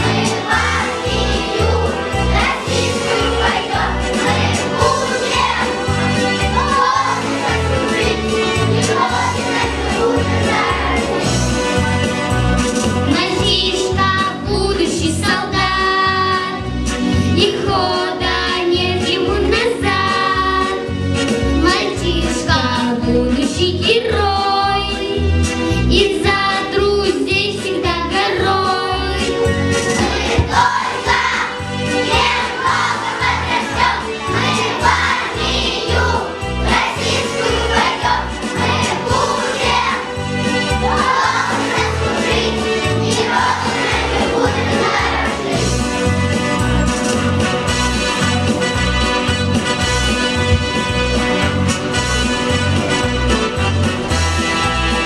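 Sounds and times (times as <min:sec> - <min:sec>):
children singing: 0:00.0 - 0:11.8, 0:29.8 - 0:46.1
backing track with steady beat: 0:28.8 - 0:55.0.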